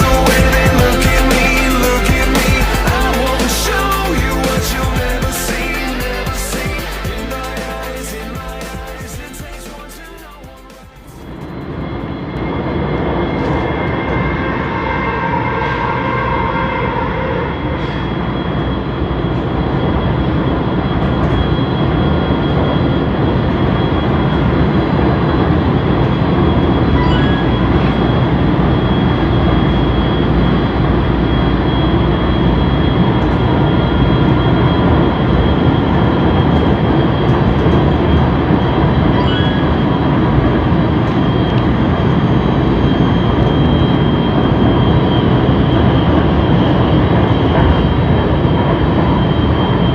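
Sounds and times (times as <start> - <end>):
thin high whine: 0.0 - 49.9
train wheels rumbling on track: 10.8 - 49.9.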